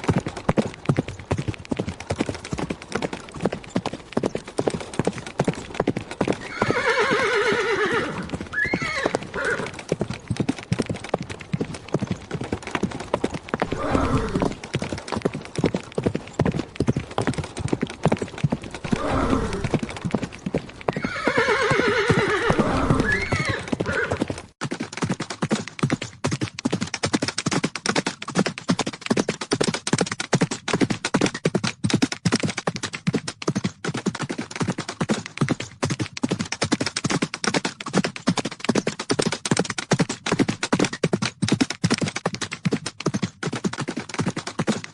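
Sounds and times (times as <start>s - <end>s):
horse hooves galloping: 0.0s - 44.9s
horse whinnying: 6.4s - 9.8s, 13.6s - 14.6s, 18.8s - 19.9s, 20.9s - 24.3s.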